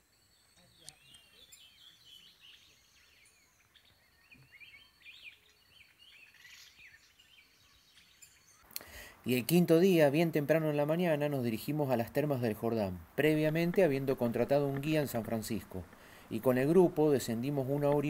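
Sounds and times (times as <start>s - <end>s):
birds chirping and whistling: 0.0s - 8.7s, 13.3s - 18.0s.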